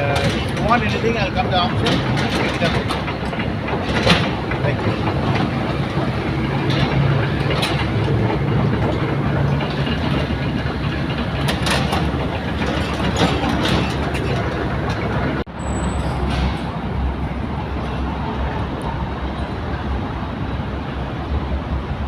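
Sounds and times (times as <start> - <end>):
knocks and rattles: 0.0 - 15.5
engine running: 0.0 - 21.9.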